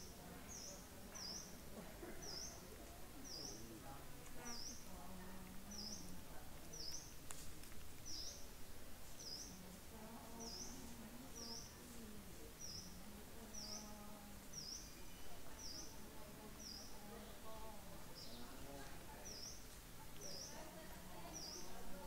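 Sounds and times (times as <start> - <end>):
bird chirping: 0.0 - 7.2, 8.0 - 21.8.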